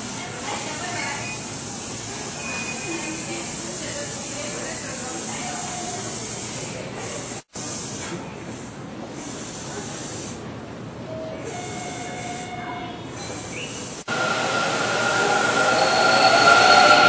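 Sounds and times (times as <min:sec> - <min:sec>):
air hiss bursts: 0:00.0 - 0:10.5, 0:13.4 - 0:17.0
approaching train running noise: 0:14.1 - 0:17.0
high-pitched whine: 0:14.1 - 0:17.0
station din: 0:14.1 - 0:17.0.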